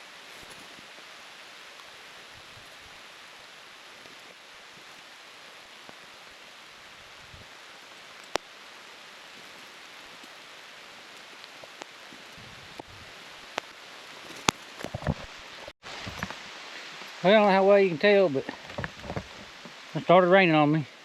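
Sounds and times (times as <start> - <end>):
steady rain falling: 0.0 - 21.0
raindrops tapping: 9.2 - 17.2, 18.4 - 20.0.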